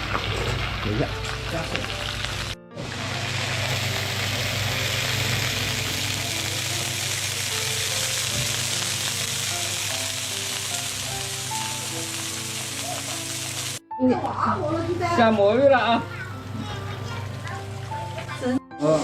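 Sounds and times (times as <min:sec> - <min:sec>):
food sizzling in oil: 0:00.0 - 0:13.8, 0:16.2 - 0:19.0.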